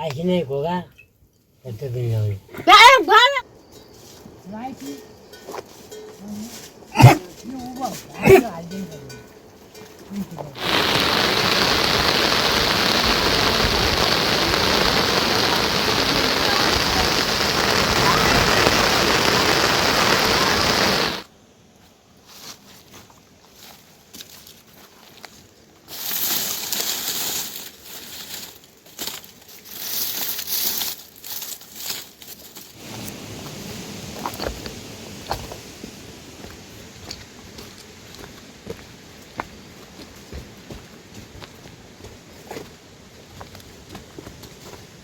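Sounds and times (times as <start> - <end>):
heavy rain: 10.6 - 21.2, 32.8 - 35.6
rustling crinkling noise: 21.9 - 38.6.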